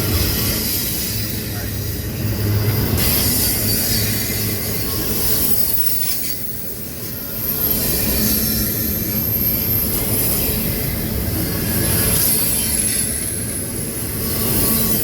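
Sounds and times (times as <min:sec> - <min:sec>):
railroad cars rumbling past: 0:00.0 - 0:15.0
high-pitched wheel squeal: 0:03.0 - 0:10.8.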